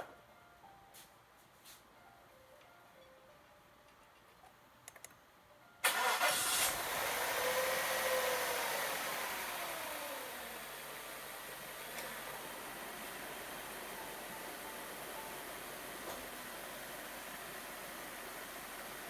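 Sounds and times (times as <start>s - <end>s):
car engine starting and revving: 5.8s - 14.2s.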